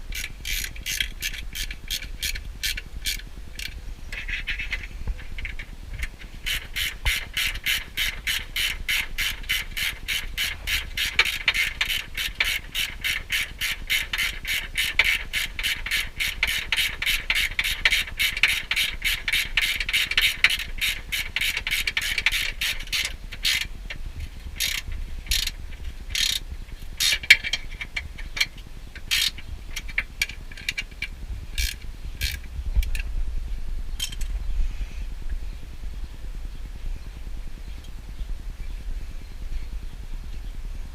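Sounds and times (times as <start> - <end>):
ratchet wrench clicking: 0.1 - 4.8, 5.4 - 23.7, 24.6 - 26.4, 27.0 - 33.0.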